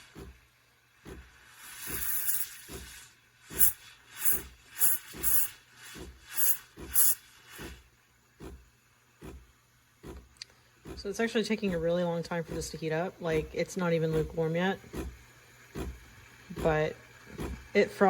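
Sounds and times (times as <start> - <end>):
steam wand hissing: 1.0 - 8.6.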